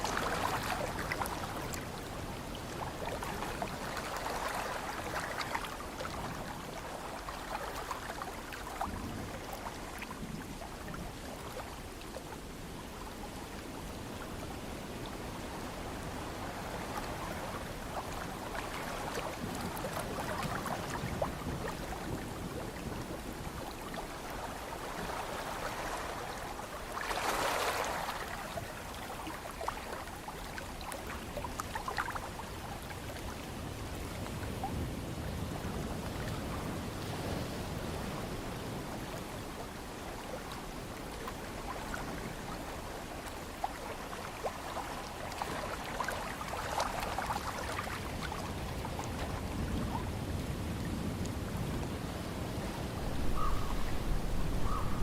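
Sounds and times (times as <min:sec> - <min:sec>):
ocean surf washing in: 0:52.1 - 0:55.0
wave surging: 0:52.8 - 0:55.0.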